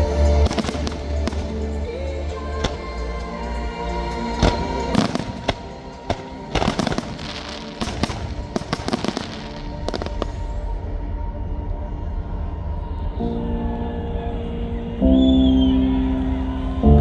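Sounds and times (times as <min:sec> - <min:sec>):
background music: 0:00.0 - 0:17.0
fireworks bangs: 0:00.5 - 0:03.0, 0:04.4 - 0:10.8.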